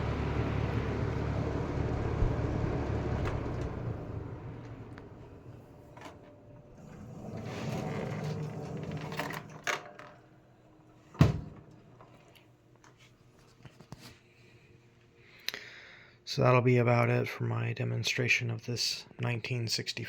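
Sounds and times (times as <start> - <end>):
box fan running: 0.0 - 15.2.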